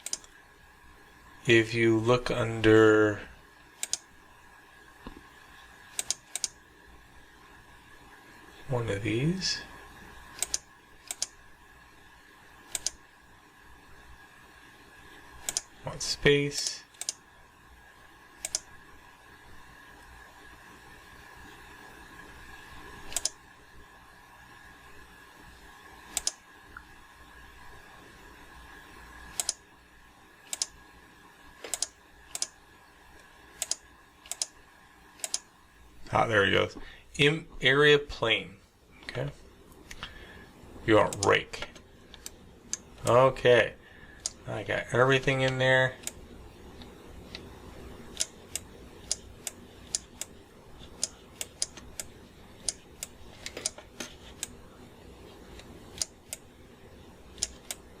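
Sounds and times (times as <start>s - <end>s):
computer mouse clicks: 0.0s - 0.4s, 3.8s - 4.1s, 5.9s - 6.6s, 10.3s - 11.4s, 12.7s - 13.0s, 15.4s - 15.7s, 16.6s - 17.2s, 18.4s - 18.7s, 23.1s - 23.4s, 26.1s - 26.9s, 29.3s - 29.6s, 30.4s - 30.8s, 31.6s - 32.6s, 33.2s - 34.6s, 35.2s - 35.5s, 41.1s - 42.9s, 44.2s - 44.4s, 46.0s - 46.2s, 48.1s - 54.6s, 55.5s - 56.5s, 57.3s - 57.9s
faint electrical hum: 0.0s - 58.0s.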